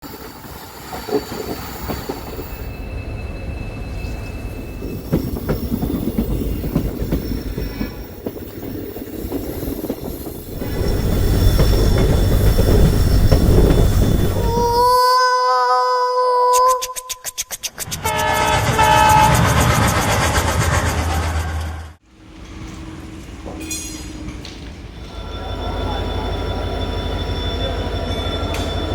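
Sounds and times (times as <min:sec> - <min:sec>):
train wheels rumbling on rails: 0:00.0 - 0:15.0, 0:17.8 - 0:28.9
thin wheel squeal: 0:00.2 - 0:08.2, 0:08.8 - 0:15.0, 0:16.4 - 0:21.9.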